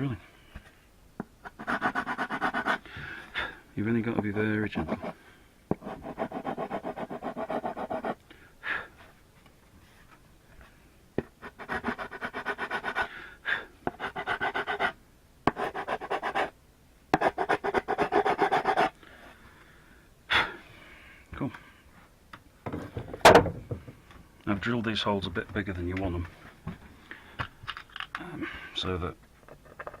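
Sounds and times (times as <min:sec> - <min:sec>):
hand tool scraping wood: 0:01.4 - 0:02.8, 0:04.7 - 0:08.2, 0:11.4 - 0:13.1.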